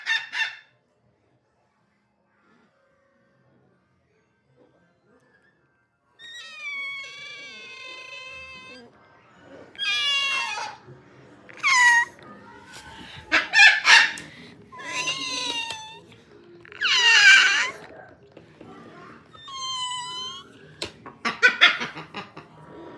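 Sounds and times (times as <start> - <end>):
cockatiels screeching: 0.0 - 0.6, 6.2 - 8.8, 9.8 - 10.8, 11.5 - 12.1, 12.7 - 16.0, 16.7 - 17.9, 19.4 - 20.4, 21.3 - 22.0.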